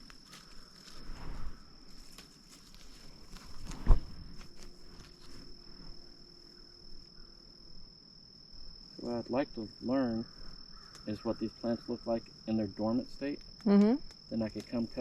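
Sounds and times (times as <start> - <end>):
brambles rustling and crackling: 0.0 - 6.2
insect trill: 0.0 - 15.0.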